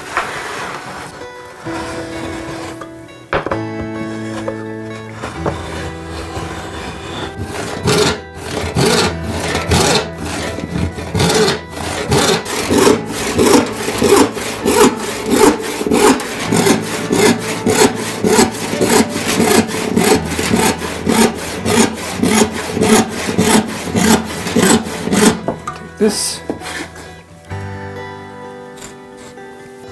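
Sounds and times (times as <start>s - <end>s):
saw cutting wood: 0.0s - 3.0s, 3.8s - 27.2s, 28.8s - 29.4s
background music: 0.0s - 29.9s.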